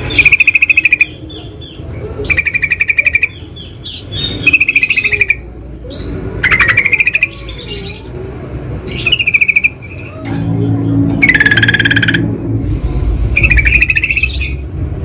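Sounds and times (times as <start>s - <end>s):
birds chattering: 0.0s - 14.7s
low steady hum: 5.1s - 15.0s.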